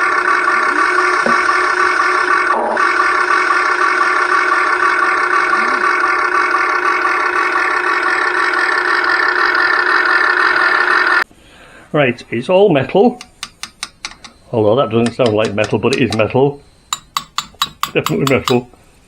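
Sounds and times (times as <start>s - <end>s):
toy excavator motor droning: 0.0s - 11.2s, 16.9s - 18.6s.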